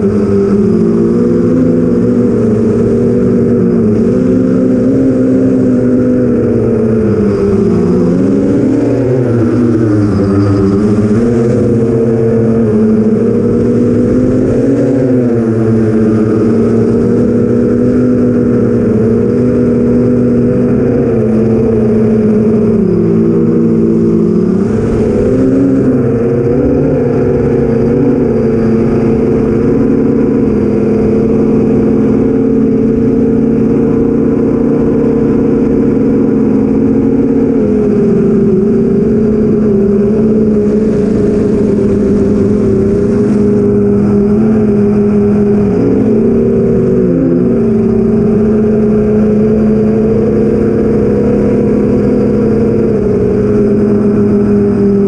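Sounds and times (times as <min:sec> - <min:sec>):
quadcopter motors droning: 0:00.0 - 0:55.0.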